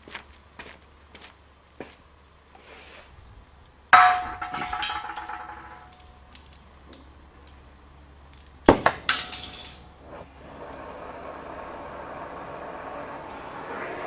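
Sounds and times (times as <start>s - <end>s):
metal clanking and clanging: 4.0s - 6.6s.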